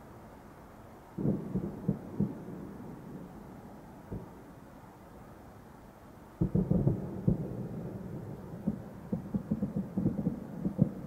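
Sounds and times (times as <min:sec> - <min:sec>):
small firework pops: 0:08.6 - 0:11.0.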